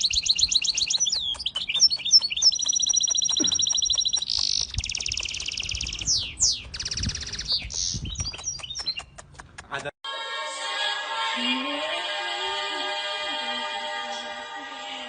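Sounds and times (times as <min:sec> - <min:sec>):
small bird singing trills: 0:00.0 - 0:09.2.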